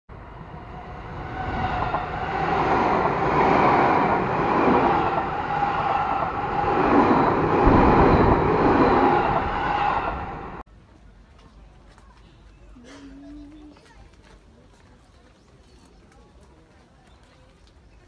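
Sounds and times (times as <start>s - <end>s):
steady high tone: 0.1s - 10.6s
train wheels rumbling on rails: 0.1s - 10.6s.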